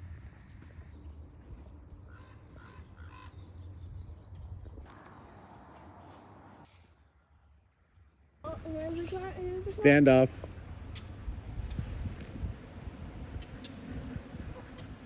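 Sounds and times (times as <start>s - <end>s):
birds calling: 0.0s - 6.8s, 8.1s - 11.8s, 12.4s - 15.0s
steady low rumble: 8.5s - 15.0s.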